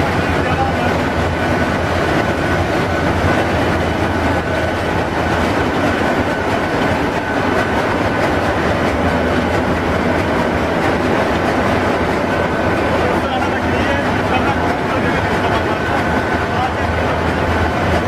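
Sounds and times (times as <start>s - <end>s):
engine-room machinery drone: 0.0s - 18.0s.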